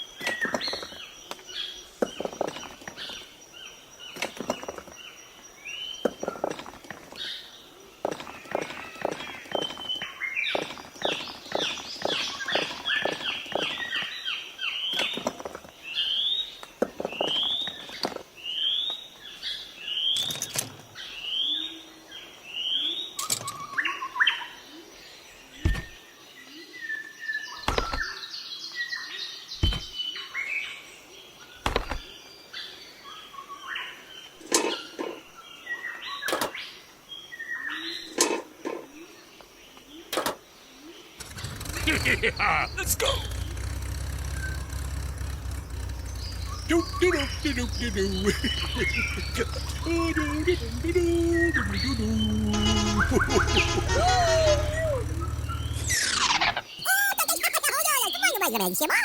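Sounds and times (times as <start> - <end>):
bird-like chirping: 0.0 - 26.0, 45.6 - 59.0
deep thuds: 25.6 - 26.0, 29.6 - 30.0.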